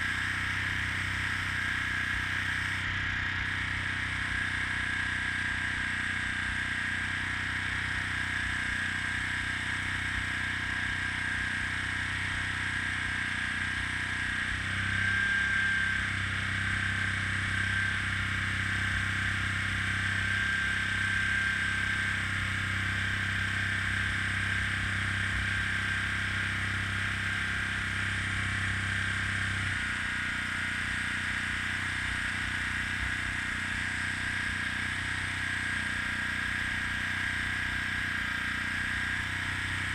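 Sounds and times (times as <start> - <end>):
low motor hum: 0.0 - 39.9.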